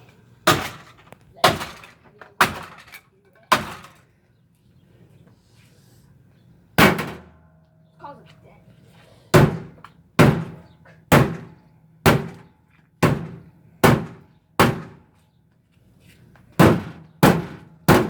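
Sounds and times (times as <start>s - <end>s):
heavy blows on metal panels: 6.8s - 7.5s, 9.4s - 15.1s, 16.6s - 18.0s.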